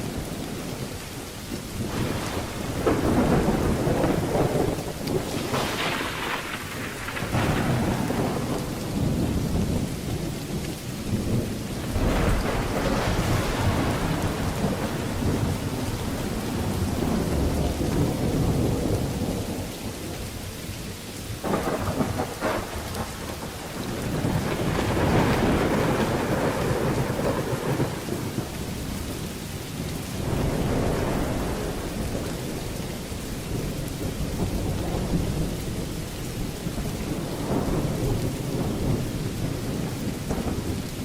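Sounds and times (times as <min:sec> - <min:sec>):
thunder rumbling: 0:00.0 - 0:20.3, 0:21.2 - 0:41.0
steady rain falling: 0:00.0 - 0:41.0.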